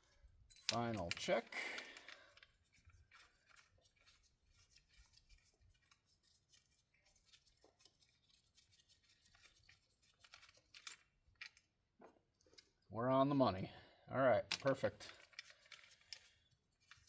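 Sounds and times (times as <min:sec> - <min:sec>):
hands handling small parts: 0:00.0 - 0:12.9, 0:14.5 - 0:17.0.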